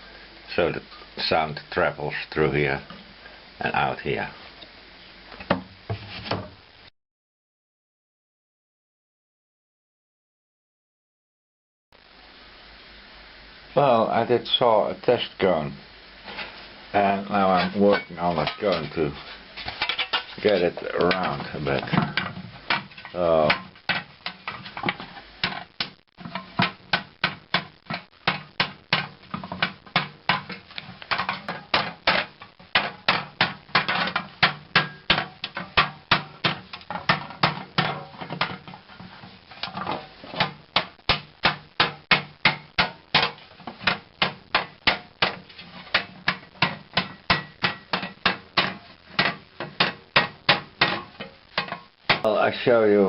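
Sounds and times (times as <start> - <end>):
rhythmic hammer blows on metal: 40.6 - 45.4, 46.0 - 52.3.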